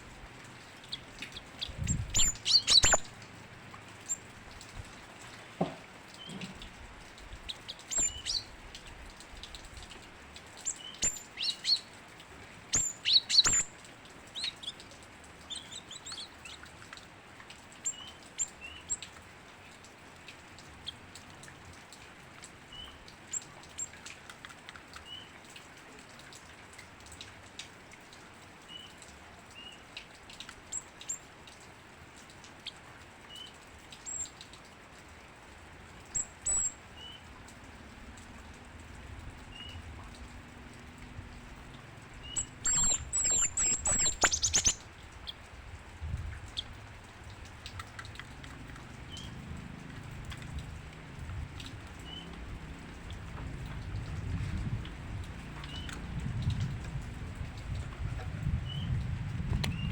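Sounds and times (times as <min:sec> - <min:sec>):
bird chirping: 0:00.8 - 0:03.1, 0:07.5 - 0:08.5, 0:12.7 - 0:13.7, 0:42.2 - 0:44.8.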